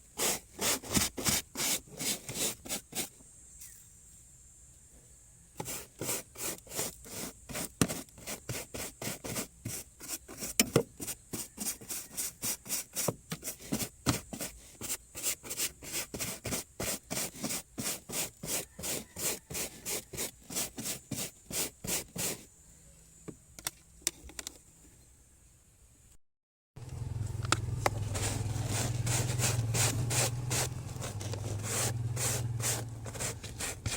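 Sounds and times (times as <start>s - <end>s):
hand brush scrubbing: 0.0s - 3.1s, 5.6s - 22.5s, 28.0s - 33.9s.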